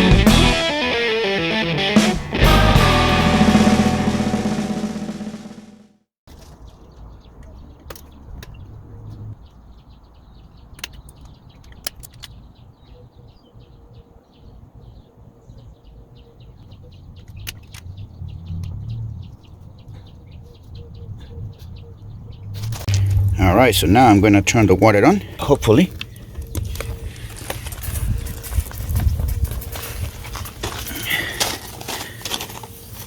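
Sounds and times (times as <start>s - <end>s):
birds chirping: 6.5s - 33.0s
low rumble: 22.8s - 24.0s.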